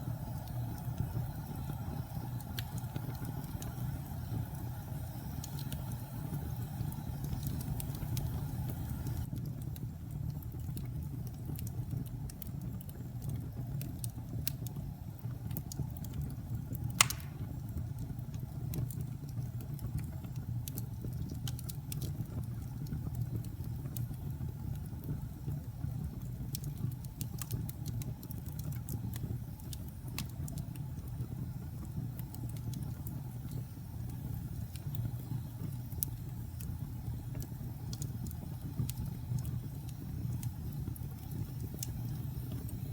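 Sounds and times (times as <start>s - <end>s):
fire crackles: 0.0s - 42.9s
logs burning in fireplace: 0.0s - 42.9s
sharp pop of burning log: 17.0s - 17.6s.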